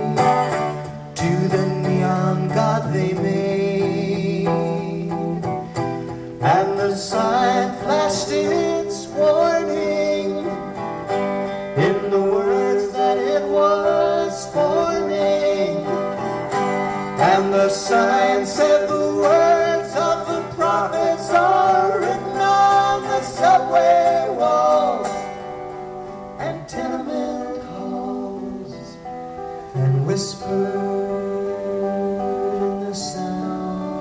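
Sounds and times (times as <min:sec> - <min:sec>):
live band with acoustic guitar: 0:00.0 - 0:34.0.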